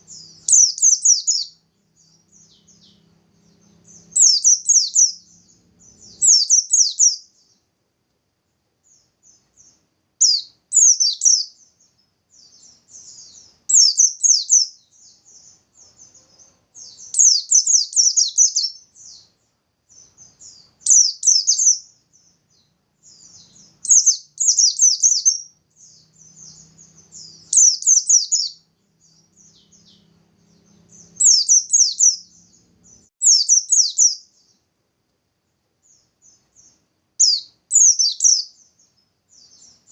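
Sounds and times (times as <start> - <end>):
bird singing rapid high bursts: 0.0 - 7.6, 9.2 - 14.8, 16.8 - 19.3, 19.9 - 22.4, 23.0 - 30.0, 30.6 - 34.5, 36.6 - 38.7.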